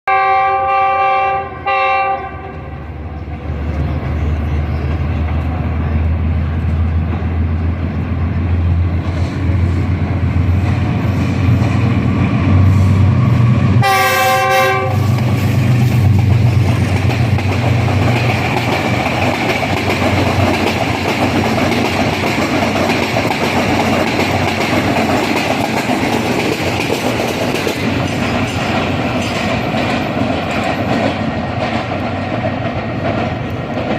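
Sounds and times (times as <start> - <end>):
locomotive horn blasts: 0.0 - 2.8, 13.8 - 15.2
train coaches clattering over rails: 1.6 - 33.9.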